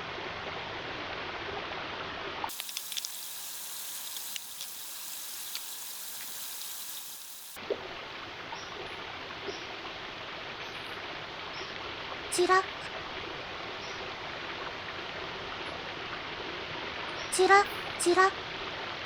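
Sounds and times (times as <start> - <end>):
running stream: 0.0 - 19.0
fish sizzling on a grill: 2.5 - 7.6.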